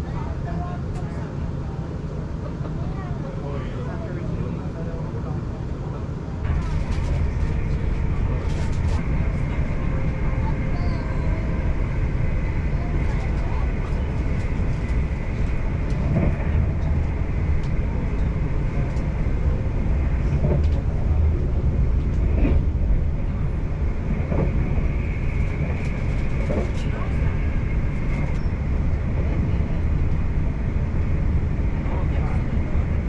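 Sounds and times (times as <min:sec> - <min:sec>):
wheels rumbling on rails: 0:06.1 - 0:33.0.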